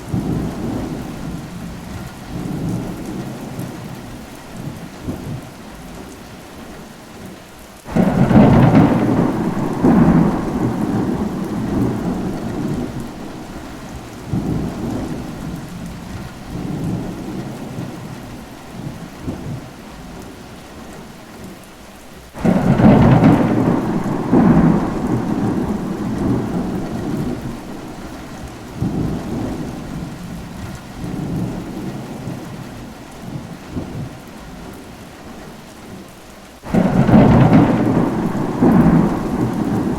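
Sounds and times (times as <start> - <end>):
thunder rolling: 0.0 - 3.9, 7.9 - 19.7, 22.4 - 34.2, 36.7 - 39.9
steady rain: 0.0 - 39.9.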